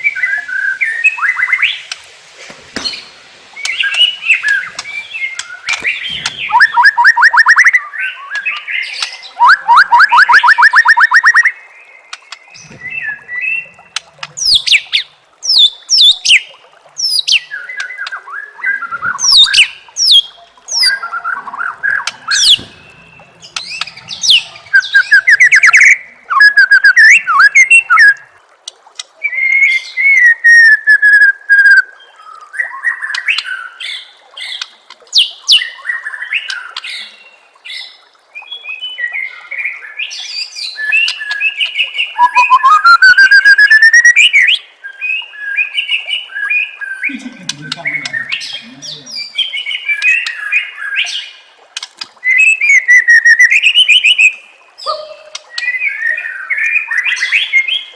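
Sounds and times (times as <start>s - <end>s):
bird singing with trills: 2.9s - 28.2s, 37.8s - 51.3s, 52.2s - 57.9s.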